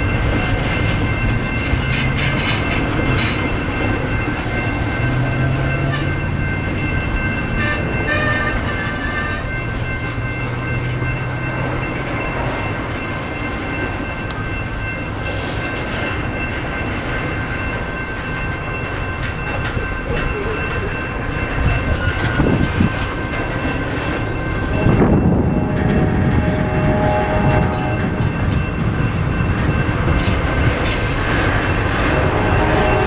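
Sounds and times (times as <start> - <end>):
high ringing tones: 0.0 - 33.0
train wheels rumbling and clattering: 0.0 - 33.0.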